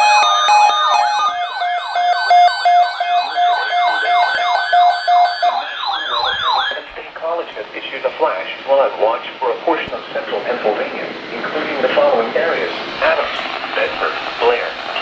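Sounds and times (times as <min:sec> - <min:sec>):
electronic siren wails: 0:00.0 - 0:06.9
pulsing steady tone: 0:00.0 - 0:07.0.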